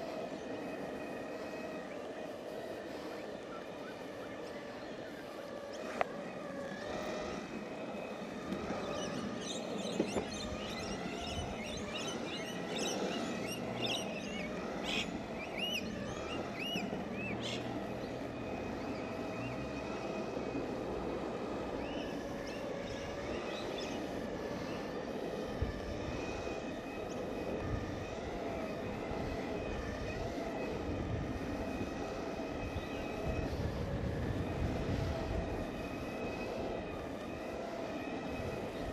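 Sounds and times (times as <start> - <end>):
birds chirping: 0.0 - 25.2
electric motor whine: 0.0 - 38.9
wheels rolling on asphalt: 0.0 - 38.9.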